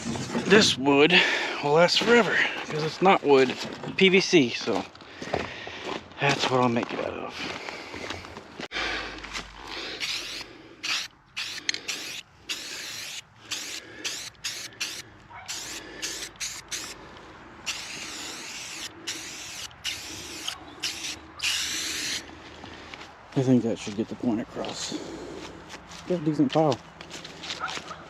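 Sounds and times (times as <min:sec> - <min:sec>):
spray paint can hissing: 0:10.0 - 0:17.0, 0:17.7 - 0:22.2.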